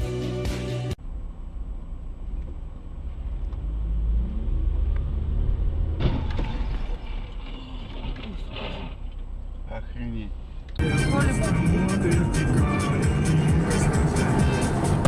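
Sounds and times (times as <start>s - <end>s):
intro music: 0.0s - 1.0s, 10.8s - 15.0s
car rumbling on road: 1.0s - 15.0s.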